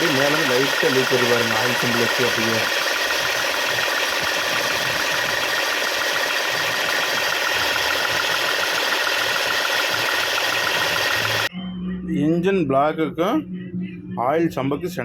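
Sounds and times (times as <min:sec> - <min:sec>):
car engine idling: 0:00.0 - 0:11.5
fast even ticking: 0:00.0 - 0:11.5.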